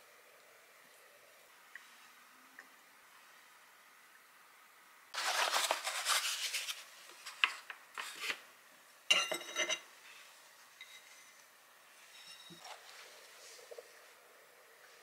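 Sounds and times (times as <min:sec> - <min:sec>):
crinkly rustling: 0:05.2 - 0:08.4
ceramic plate clink: 0:09.1 - 0:09.9, 0:10.8 - 0:11.3, 0:12.1 - 0:12.7.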